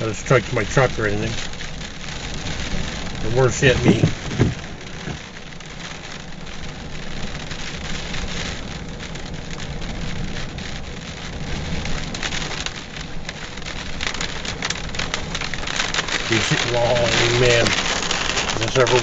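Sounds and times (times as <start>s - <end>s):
low rumble: 0.0s - 6.8s
rain falling: 0.0s - 19.0s
sharp raindrop hits: 0.0s - 19.0s.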